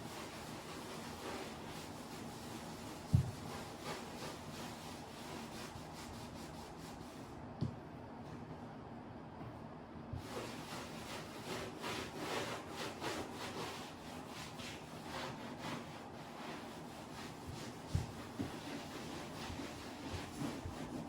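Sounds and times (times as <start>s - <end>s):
rubbing or scraping strokes: 0.0s - 7.3s, 10.2s - 21.0s
thump: 3.1s - 3.4s.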